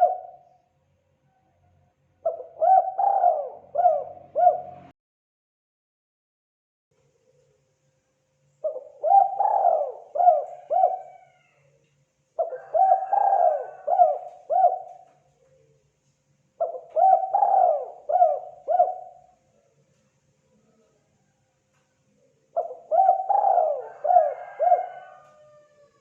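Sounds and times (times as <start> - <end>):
dove cooing: 0.0 - 0.6, 2.2 - 4.9, 8.6 - 11.6, 12.4 - 15.8, 16.6 - 19.4, 22.2 - 26.0.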